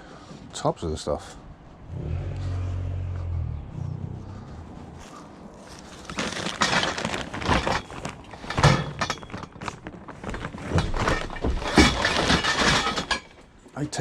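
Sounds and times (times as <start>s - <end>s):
scrap metal clattering: 5.6s - 13.5s.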